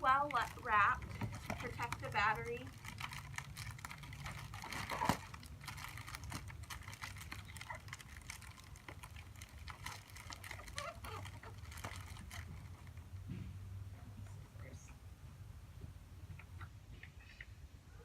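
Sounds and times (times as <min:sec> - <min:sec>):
plastic wrap crinkling: 0:00.0 - 0:13.2
low steady hum: 0:00.0 - 0:18.0.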